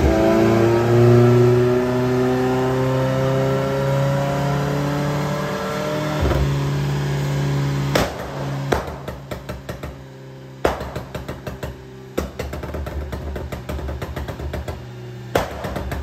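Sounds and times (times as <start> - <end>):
car engine revving under load: 0.0 - 16.0.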